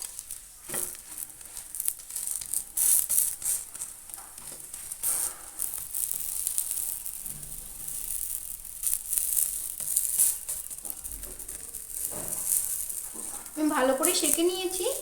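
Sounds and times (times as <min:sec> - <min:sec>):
flatbread frying in oil: 0:00.0 - 0:15.0.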